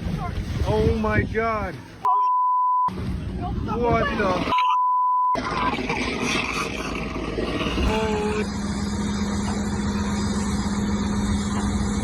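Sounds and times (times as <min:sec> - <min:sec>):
motor running: 0:05.4 - 0:12.0
steady low drone: 0:05.4 - 0:12.0.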